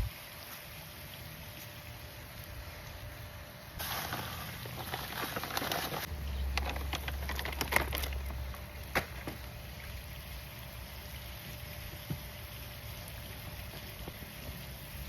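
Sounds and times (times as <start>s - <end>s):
hands rustling plants and soil: 3.8s - 9.6s.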